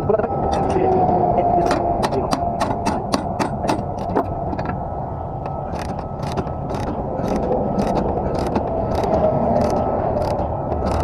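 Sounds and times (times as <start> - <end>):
low engine rumble: 0.0 - 11.0
metallic ratcheting clicks: 5.8 - 11.0.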